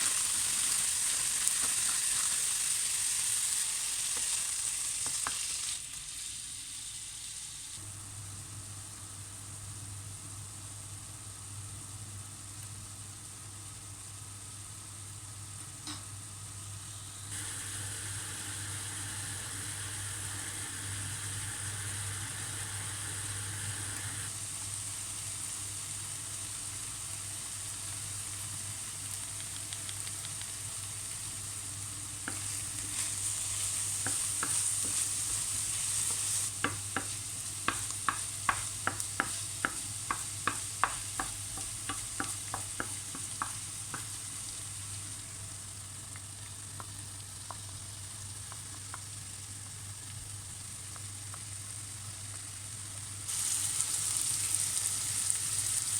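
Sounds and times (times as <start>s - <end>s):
food sizzling in a frying pan: 0.0s - 8.0s, 8.8s - 55.9s
utensil clicking against pan: 36.1s - 44.1s.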